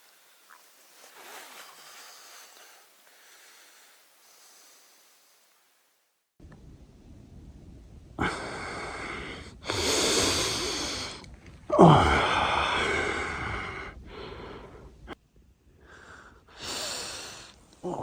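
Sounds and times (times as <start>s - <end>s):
person breathing hard: 1.7s - 5.4s, 8.2s - 11.2s, 11.8s - 15.2s, 15.8s - 18.0s.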